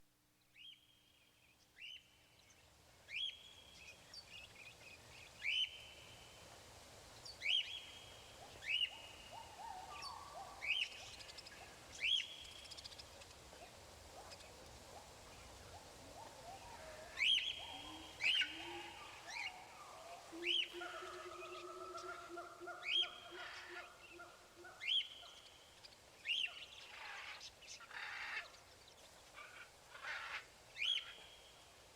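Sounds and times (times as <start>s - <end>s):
faint steady hiss: 0.0s - 31.9s
lower bird calls: 7.4s - 28.7s.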